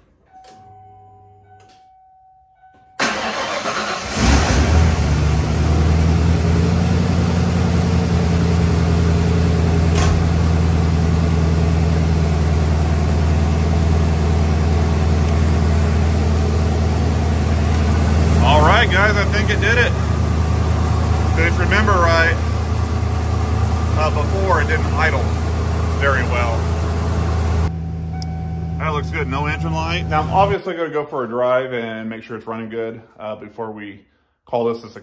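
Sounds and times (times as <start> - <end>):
truck engine starting and idling: 3.0 - 30.6.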